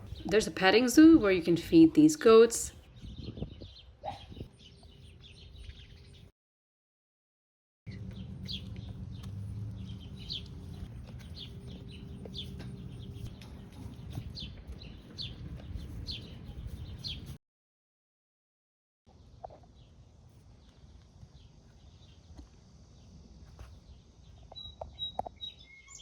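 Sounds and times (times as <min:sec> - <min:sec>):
birds chirping: 0:00.0 - 0:06.3, 0:07.9 - 0:17.4
steady low rumble: 0:07.9 - 0:17.3.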